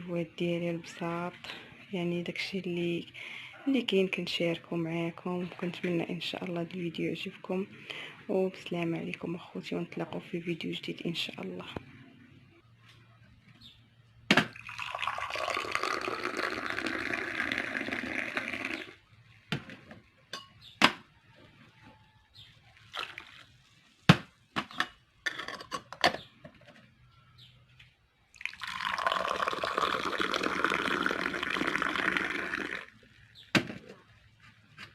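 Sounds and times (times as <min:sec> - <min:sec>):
liquid pouring: 0:14.4 - 0:19.0, 0:22.7 - 0:24.0, 0:28.3 - 0:33.2.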